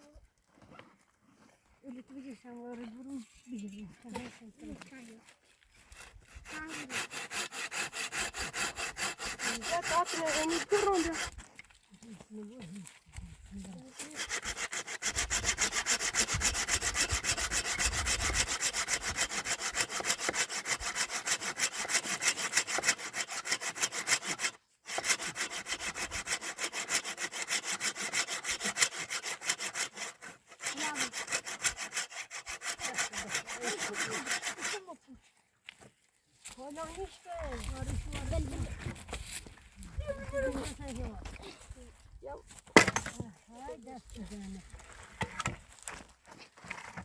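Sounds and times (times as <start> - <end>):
handsaw cutting wood: 5.8 - 11.4, 13.8 - 35.0.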